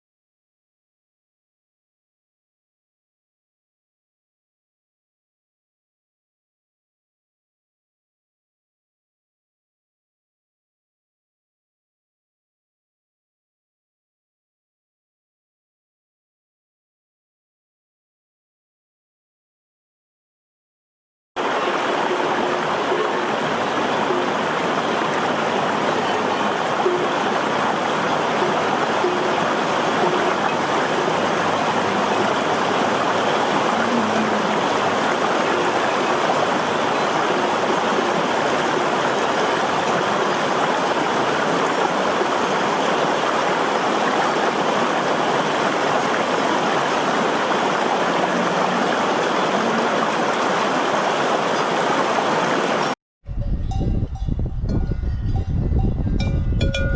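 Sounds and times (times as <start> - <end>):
rushing water: 21.4 - 53.0.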